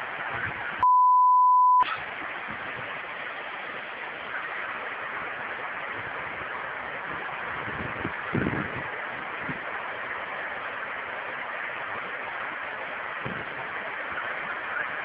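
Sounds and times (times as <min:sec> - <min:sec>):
censor bleep tone: 0:00.8 - 0:01.9.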